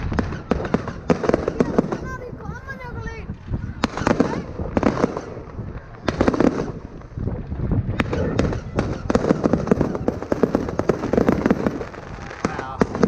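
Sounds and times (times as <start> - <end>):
fireworks bangs: 0.0 - 13.0
fireworks crackling: 0.0 - 13.0
sharp crack: 3.8 - 13.0.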